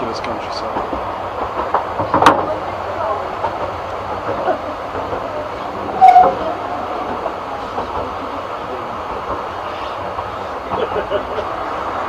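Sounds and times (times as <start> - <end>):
train wheels rumbling on rails: 0.0 - 12.0
short loud squeal: 5.9 - 6.5.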